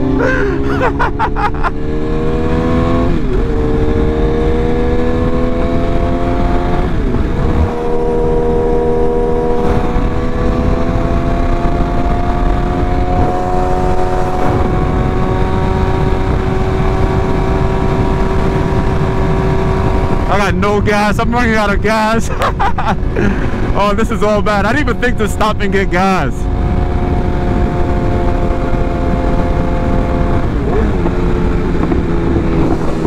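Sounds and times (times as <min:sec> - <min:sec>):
motorcycle engine upshifting: 0:00.0 - 0:20.3, 0:26.4 - 0:33.0
wind rush: 0:00.0 - 0:33.0.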